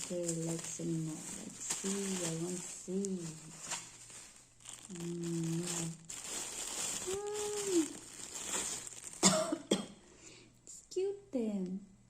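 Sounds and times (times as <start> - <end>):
plastic packaging crinkling: 0.0 - 9.7
person humming: 4.9 - 6.1, 7.0 - 8.0.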